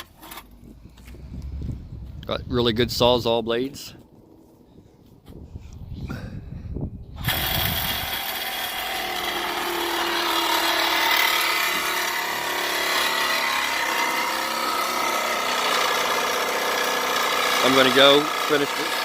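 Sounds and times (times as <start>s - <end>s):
reciprocating saw cutting: 7.2s - 19.0s.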